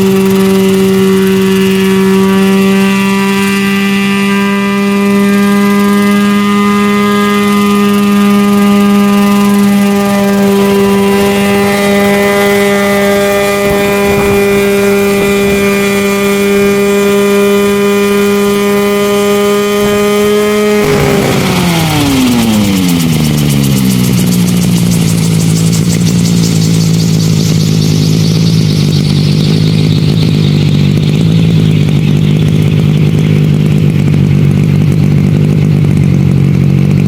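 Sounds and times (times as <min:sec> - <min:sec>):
model helicopter droning: 0:00.0 - 0:37.0.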